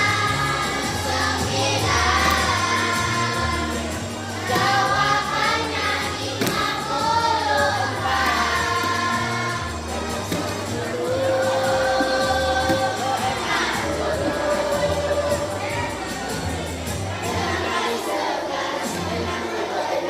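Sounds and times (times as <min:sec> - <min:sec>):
backing track with bass line: 0:00.0 - 0:17.8
group of voices singing: 0:00.0 - 0:20.0.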